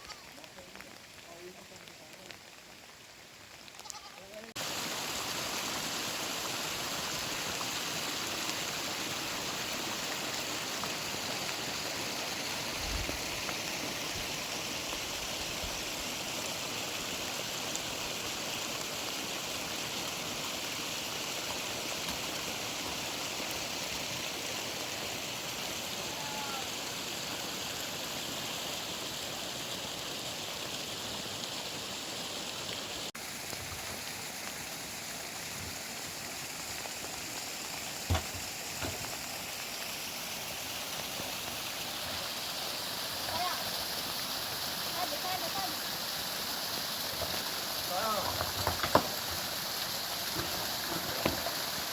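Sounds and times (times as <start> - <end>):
rainwater flowing: 0.0 - 51.9.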